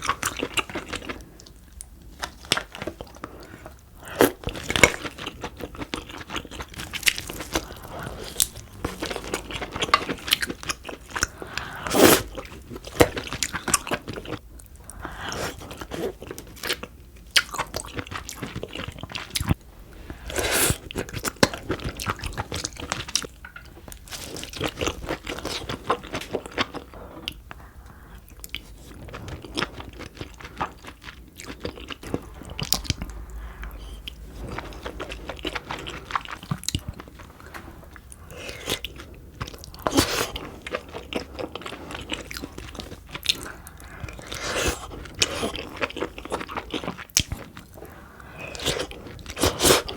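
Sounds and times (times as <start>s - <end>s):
person chewing with crunches: 0.0s - 49.9s.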